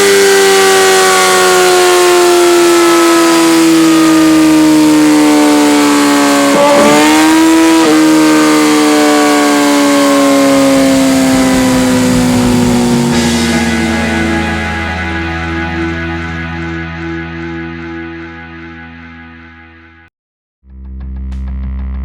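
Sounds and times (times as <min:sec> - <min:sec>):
motorcycle engine revving high: 0:00.0 - 0:16.4.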